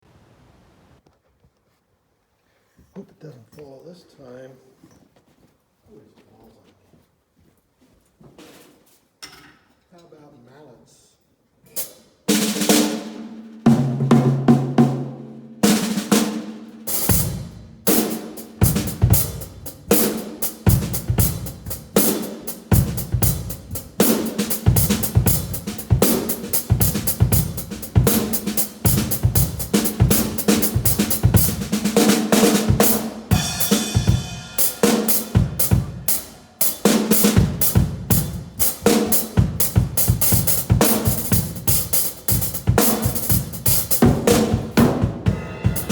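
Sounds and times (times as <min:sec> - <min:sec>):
drums played with mallets: 0:12.3 - 0:45.9
cymbal roll: 0:16.9 - 0:39.4, 0:43.9 - 0:45.9.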